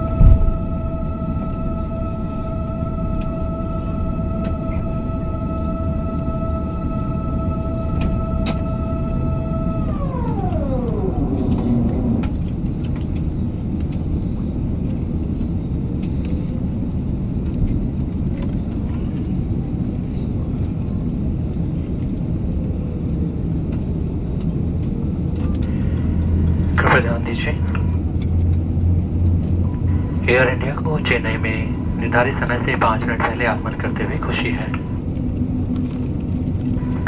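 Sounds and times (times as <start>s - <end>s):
high whine dropping in pitch: 0.0s - 13.3s
aircraft cabin low rumble: 0.0s - 37.0s.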